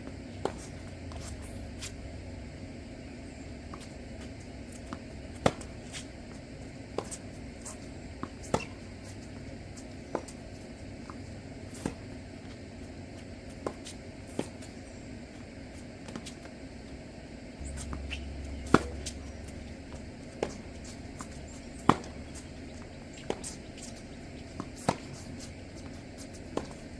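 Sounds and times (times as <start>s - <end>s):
tennis balls hit and bouncing: 0.1s - 1.9s, 3.5s - 14.8s, 17.6s - 26.9s
low steady hum: 17.6s - 26.9s.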